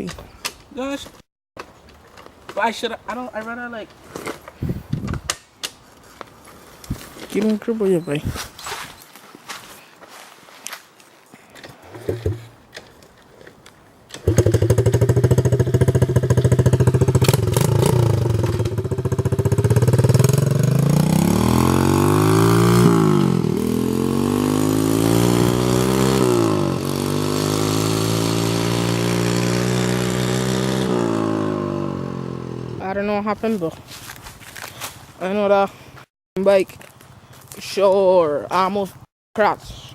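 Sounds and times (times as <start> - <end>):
motorbike engine starting and revving: 14.1 - 32.9.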